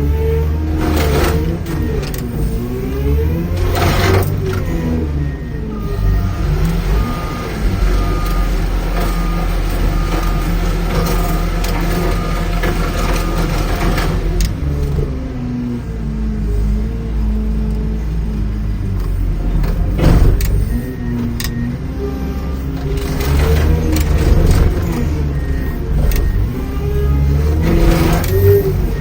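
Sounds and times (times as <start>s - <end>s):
heavy machinery engine revving: 0.0s - 29.0s
reversing alarm beeping: 2.8s - 14.2s, 20.0s - 29.0s
metal crunching crashes: 19.5s - 20.8s, 22.7s - 29.0s.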